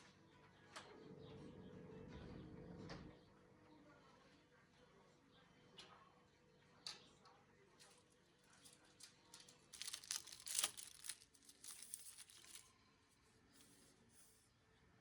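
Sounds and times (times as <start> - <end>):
rustling and crinkling: 7.8 - 12.7.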